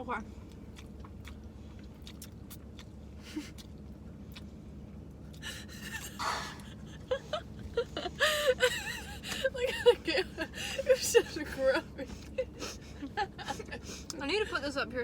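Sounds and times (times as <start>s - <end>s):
low steady hum: 0.0s - 15.0s
mouth and food clicks: 0.5s - 2.9s.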